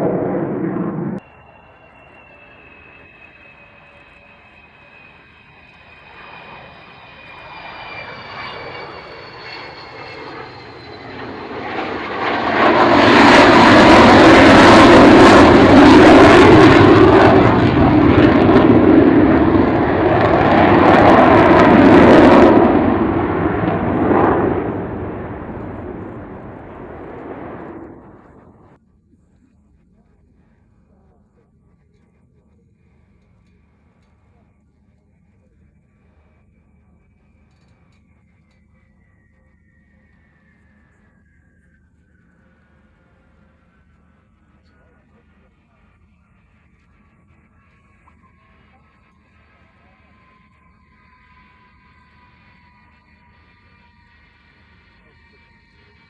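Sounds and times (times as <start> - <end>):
jet engines roaring overhead: 0.0 - 29.4, 30.0 - 56.0
faint falling whistle: 1.2 - 11.4, 36.5 - 43.0, 47.7 - 56.0.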